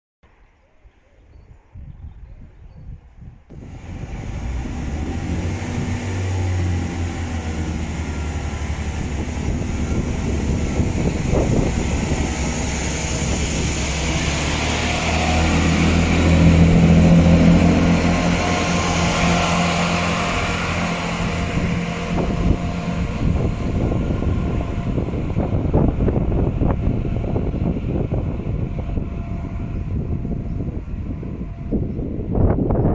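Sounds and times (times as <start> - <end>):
train passing: 3.5 - 32.9.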